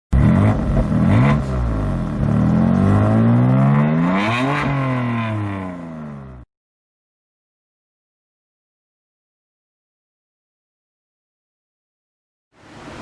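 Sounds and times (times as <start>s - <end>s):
car engine revving: 0.1s - 6.5s.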